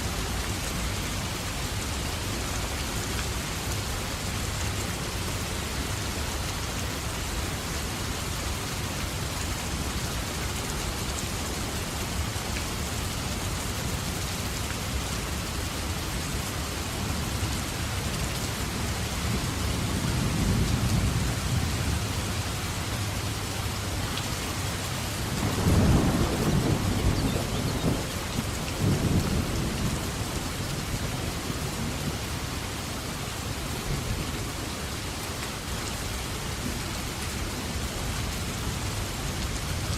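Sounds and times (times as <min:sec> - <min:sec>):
heavy rain: 0:00.0 - 0:39.9
thunder rumbling and cracking: 0:25.2 - 0:30.2.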